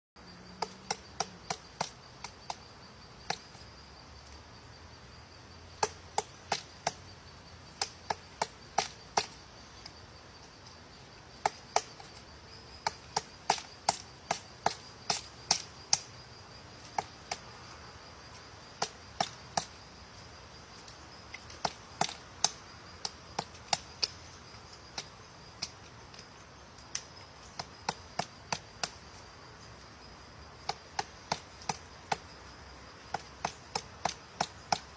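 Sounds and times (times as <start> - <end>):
woodpecker pecking at wood: 0.6 - 3.7, 5.7 - 7.1, 7.7 - 16.2, 20.8 - 34.9.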